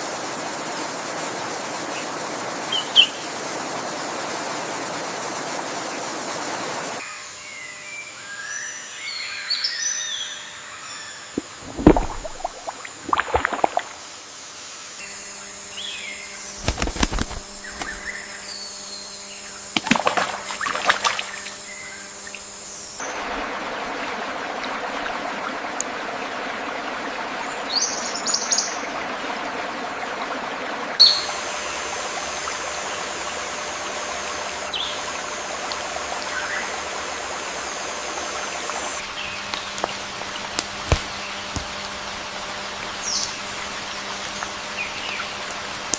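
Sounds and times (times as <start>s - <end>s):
stream water flowing: 11.3s - 14.4s, 19.7s - 45.9s.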